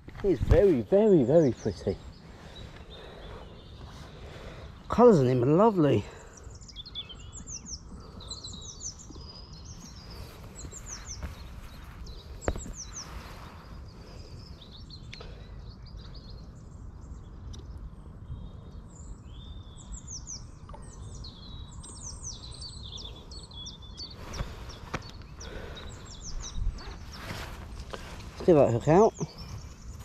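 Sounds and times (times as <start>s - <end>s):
small birds chirping: 0.0s - 30.0s
rustling: 26.4s - 30.0s.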